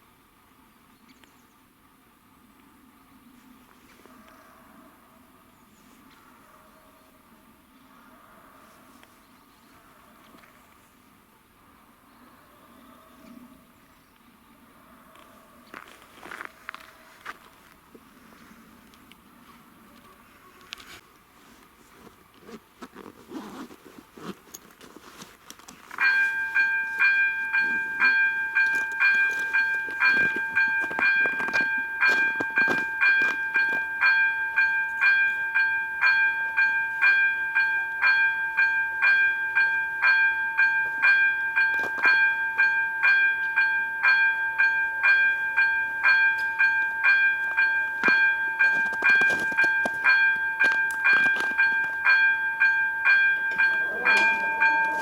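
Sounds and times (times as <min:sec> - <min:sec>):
level crossing warning bell: 0:25.9 - 0:55.0.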